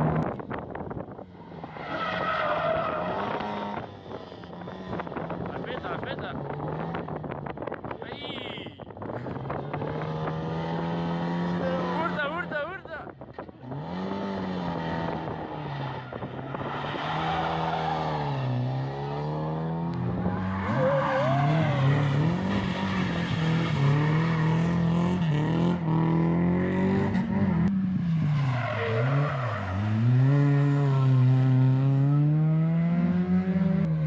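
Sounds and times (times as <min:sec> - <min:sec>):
rally car engine revving: 0:09.0 - 0:12.5, 0:13.2 - 0:34.0
tyre squeal: 0:20.1 - 0:24.8.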